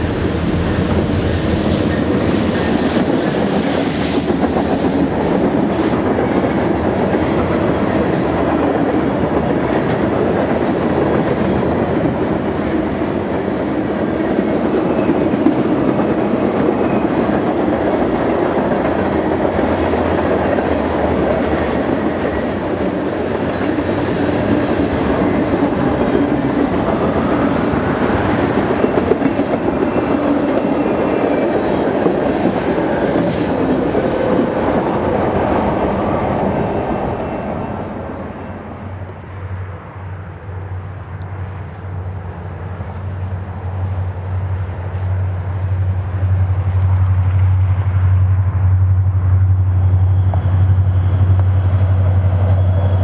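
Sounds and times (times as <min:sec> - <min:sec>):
freight train rumble: 0:00.0 - 0:53.0.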